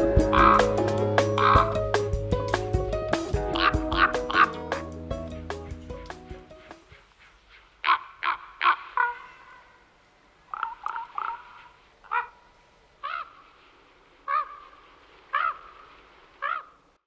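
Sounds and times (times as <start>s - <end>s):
bird calling short calls: 0.3s - 0.8s, 1.4s - 1.8s, 3.5s - 4.9s, 6.6s - 9.9s, 10.5s - 13.5s, 14.3s - 16.8s.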